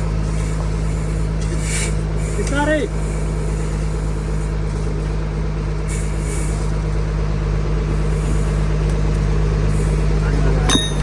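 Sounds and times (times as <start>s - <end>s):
truck engine running: 0.0s - 11.0s
brief hiss: 1.5s - 2.6s.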